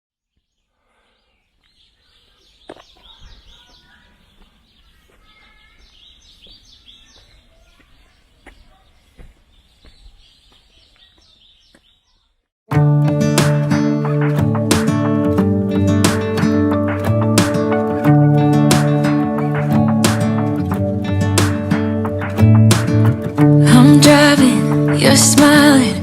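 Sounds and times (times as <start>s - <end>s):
small birds chirping: 0.2s - 12.5s.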